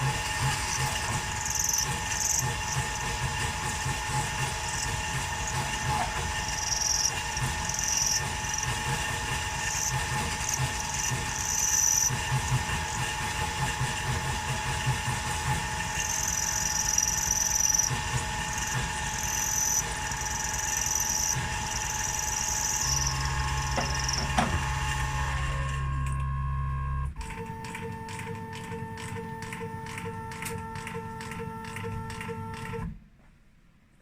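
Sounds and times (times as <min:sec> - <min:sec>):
higher machine whine: 0:00.0 - 0:32.8
milling machine spindle whine: 0:00.0 - 0:32.9.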